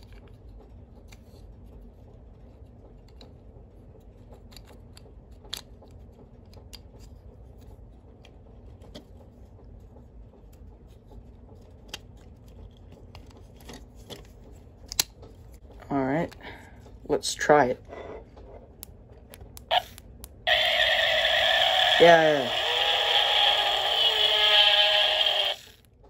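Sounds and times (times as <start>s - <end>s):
low hum: 15.4s - 25.8s.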